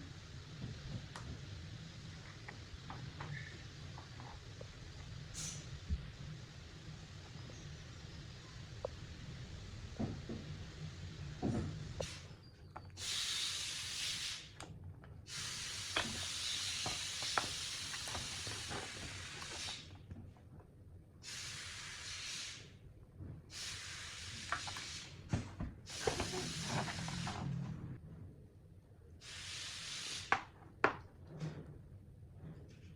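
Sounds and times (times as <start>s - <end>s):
spray hissing: 5.3s - 6.9s, 13.0s - 14.5s, 15.3s - 19.9s, 21.2s - 22.8s, 23.5s - 25.2s, 25.9s - 27.4s, 29.2s - 30.3s.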